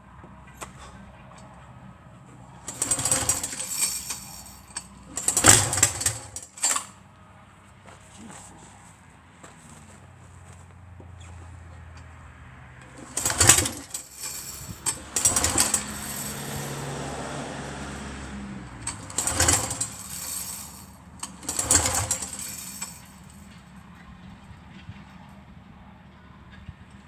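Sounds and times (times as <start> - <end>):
radial engine rapid firing: 13.0 - 17.0.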